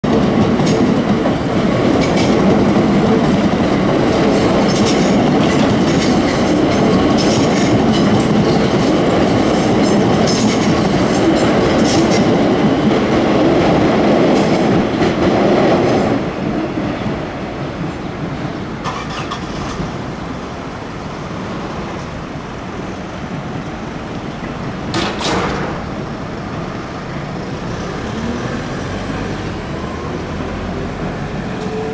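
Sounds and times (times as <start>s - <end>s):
train wheels clicking over rail joints: 0.1s - 16.6s, 17.8s - 20.4s, 21.6s - 27.9s.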